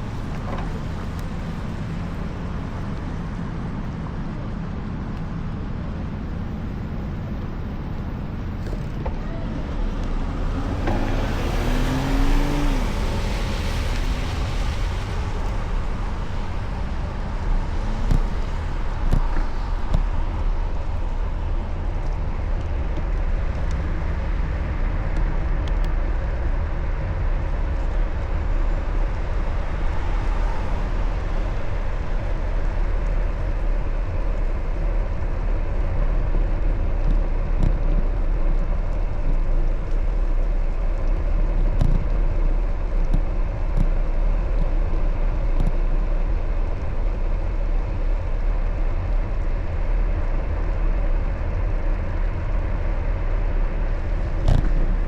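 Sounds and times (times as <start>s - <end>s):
low rumble: 0.0s - 55.0s
road and traffic noise: 0.0s - 55.0s.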